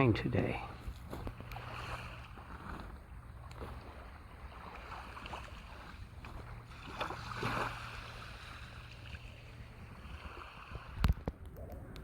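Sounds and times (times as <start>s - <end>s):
low wind rumble: 0.0s - 12.0s
paddle splashing in water: 0.8s - 11.2s.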